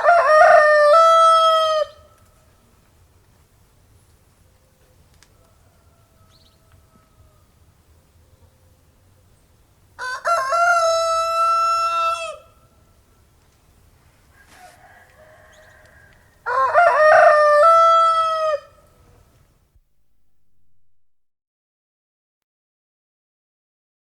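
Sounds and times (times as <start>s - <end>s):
rooster crowing: 0.0s - 2.1s, 5.3s - 7.6s, 10.0s - 12.6s, 14.3s - 19.0s.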